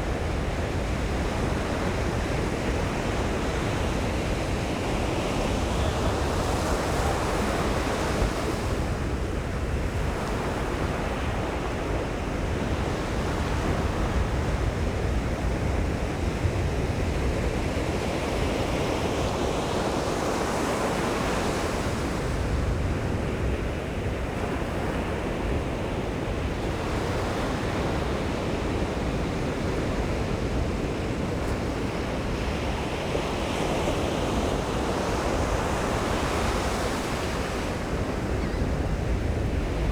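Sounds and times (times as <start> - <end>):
waves breaking on beach: 0.0 - 39.9
wind on microphone: 21.2 - 39.9.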